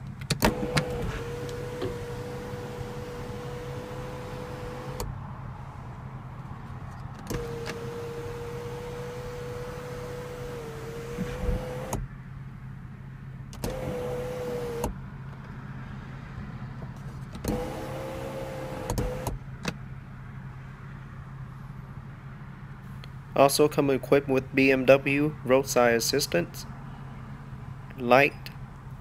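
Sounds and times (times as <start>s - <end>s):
sunroof motor whining: 0.0s - 5.7s, 6.7s - 12.2s, 13.5s - 15.5s, 17.0s - 19.5s.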